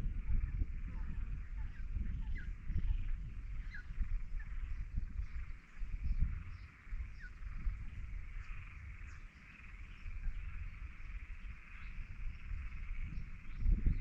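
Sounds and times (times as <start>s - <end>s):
frogs or insects calling: 0.0s - 14.0s.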